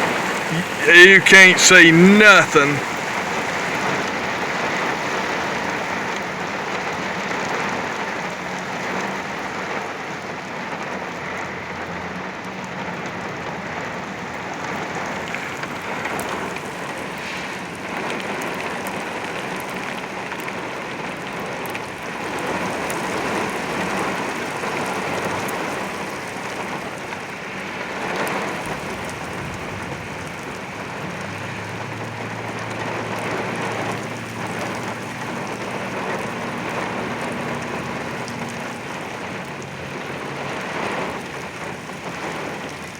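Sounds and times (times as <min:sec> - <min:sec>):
heavy rain on a vehicle: 0:00.0 - 0:42.9.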